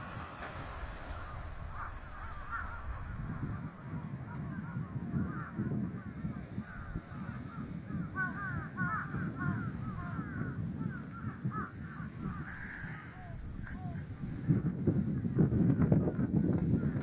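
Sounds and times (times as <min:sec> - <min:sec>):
low rumble: 0:00.0 - 0:05.6
birds calling: 0:00.0 - 0:14.4.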